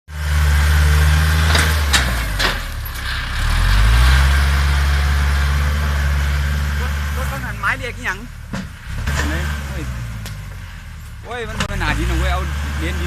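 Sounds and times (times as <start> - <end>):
tractor diesel engine under load: 0.1 - 13.0.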